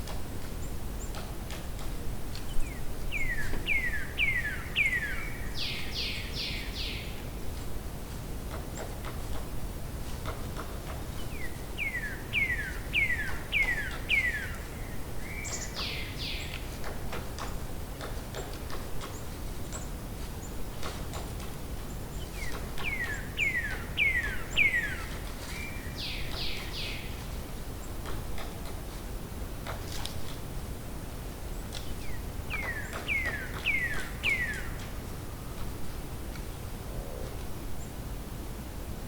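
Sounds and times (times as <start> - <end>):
low background noise: 0.0 - 39.0
songbird singing: 2.3 - 7.4, 10.8 - 28.5, 31.4 - 35.7.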